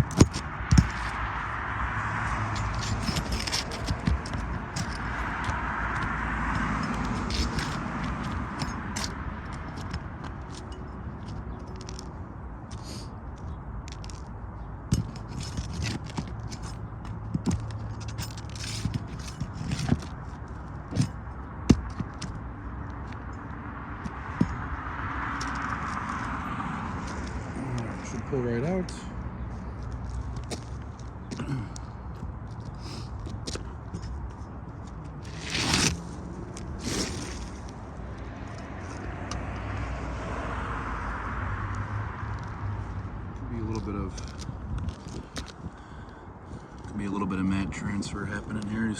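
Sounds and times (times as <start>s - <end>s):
tool scraping shingles: 0.0s - 1.3s, 2.3s - 12.0s, 14.9s - 22.4s, 35.2s - 37.8s
vehicle passing: 0.0s - 13.2s, 20.1s - 48.9s
road traffic: 0.0s - 48.9s
short scrape: 35.2s - 36.1s, 36.8s - 37.6s.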